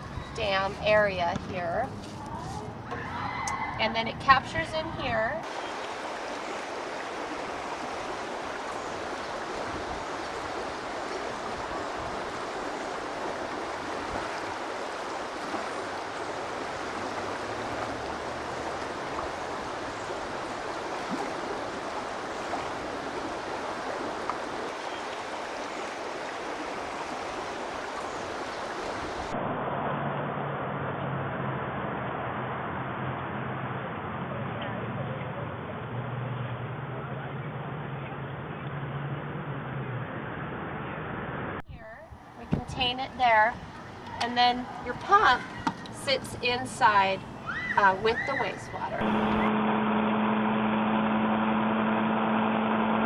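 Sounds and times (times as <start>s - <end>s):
water rushing over pavement: 2.8s - 29.4s, 42.4s - 49.5s.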